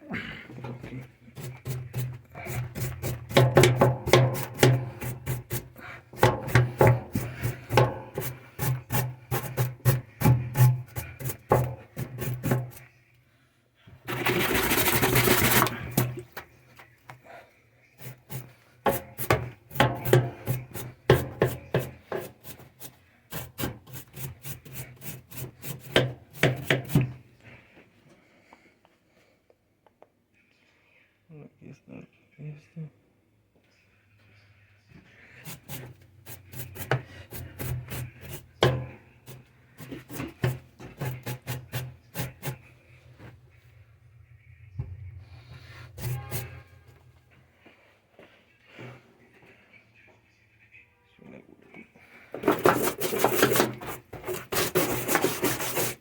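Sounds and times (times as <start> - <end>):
knocking tapping and scraping: 0.6 - 12.9, 14.0 - 17.0, 18.0 - 27.3, 35.4 - 43.9, 44.6 - 47.3, 52.3 - 56.0
steady low hum: 40.6 - 47.6.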